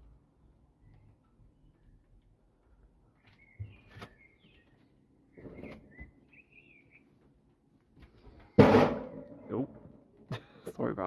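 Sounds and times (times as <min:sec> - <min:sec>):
bird chirps and warbling calls: 0:03.2 - 0:07.1.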